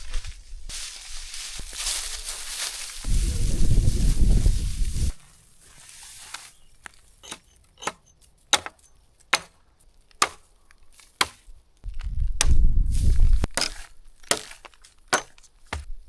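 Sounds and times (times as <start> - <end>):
wind buffeting microphone: 3.0 - 5.2, 11.9 - 13.5
wood being chopped: 7.2 - 11.5, 12.4 - 16.0.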